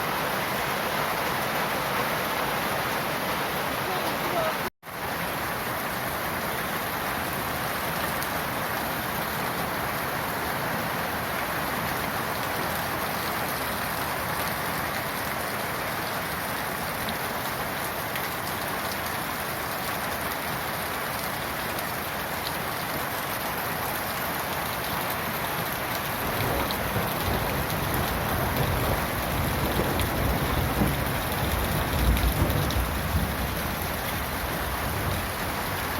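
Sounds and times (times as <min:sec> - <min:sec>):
heavy rain: 0:00.0 - 0:35.9.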